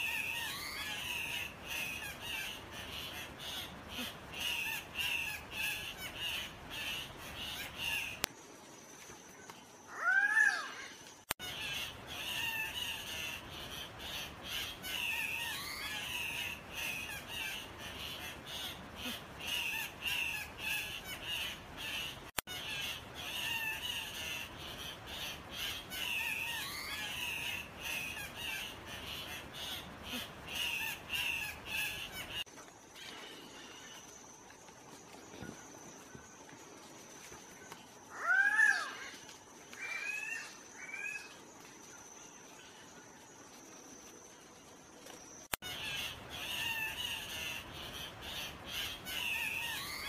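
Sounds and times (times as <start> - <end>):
bird squawking: 11.4 - 32.4, 45.6 - 50.0.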